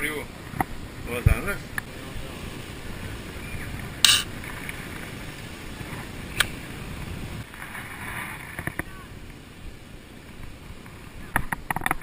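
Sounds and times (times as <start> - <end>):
metallic ring-pull click: 4.1 - 4.3.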